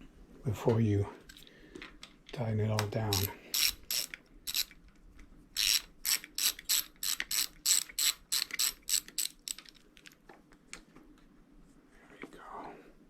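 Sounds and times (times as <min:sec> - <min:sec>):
ratchet tool clicking: 0:03.1 - 0:04.7, 0:05.6 - 0:09.7.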